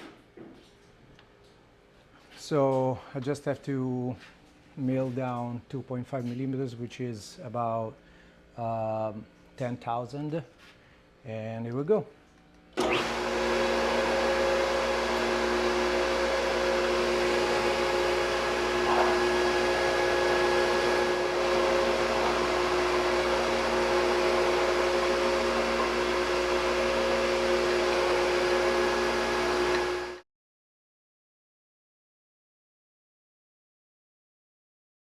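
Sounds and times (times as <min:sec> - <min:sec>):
milling machine humming: 0:12.8 - 0:30.2.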